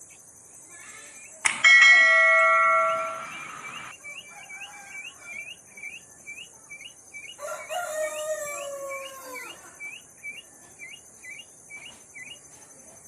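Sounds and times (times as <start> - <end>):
bell-like ringing tone: 1.5 - 3.9.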